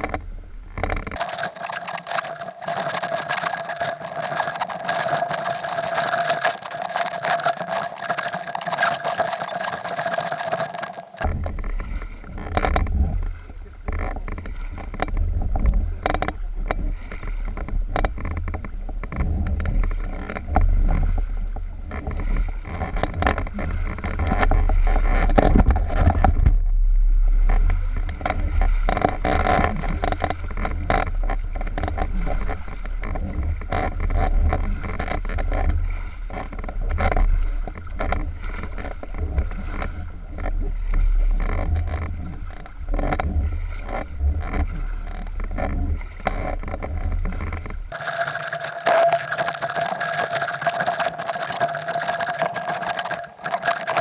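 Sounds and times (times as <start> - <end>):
steady hiss with whine: 1.2 - 11.2, 47.9 - 54.0.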